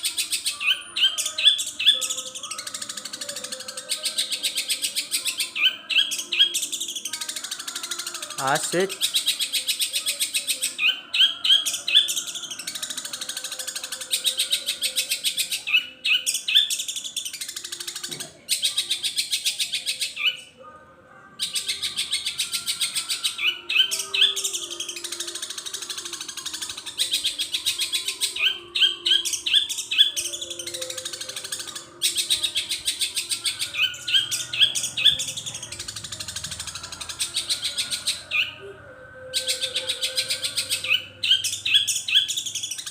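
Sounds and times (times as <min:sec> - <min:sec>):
bird chattering song: 0:00.0 - 0:20.5, 0:21.4 - 0:38.6, 0:39.2 - 0:42.9.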